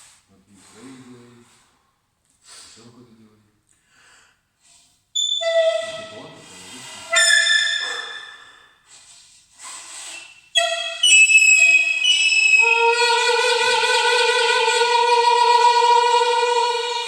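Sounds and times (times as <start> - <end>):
saxophone notes: 10.6 - 17.0.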